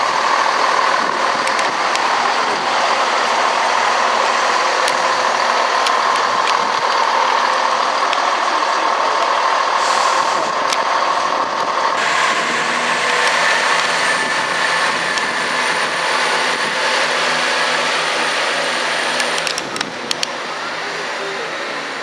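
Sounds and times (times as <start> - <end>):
diesel train engine running: 0.0 - 22.0
sharp clicks: 4.8 - 7.1, 19.2 - 20.4.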